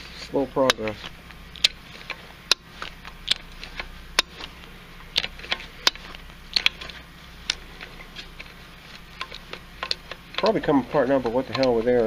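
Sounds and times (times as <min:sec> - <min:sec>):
wrench clicking metallically: 0:09.2 - 0:12.0.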